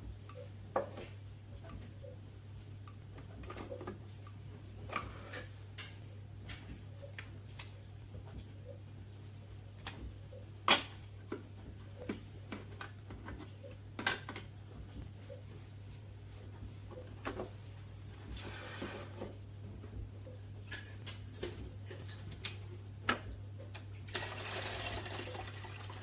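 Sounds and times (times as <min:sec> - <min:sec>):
steady low hum: 0:00.0 - 0:24.1.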